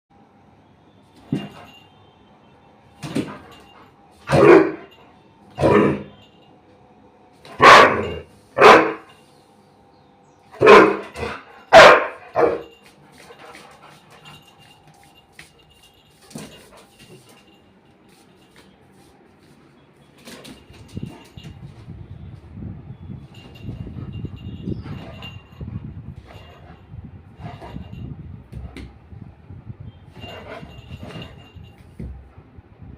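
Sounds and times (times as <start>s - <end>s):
dog barking: 4.3s - 4.9s, 7.5s - 9.1s, 10.6s - 12.7s.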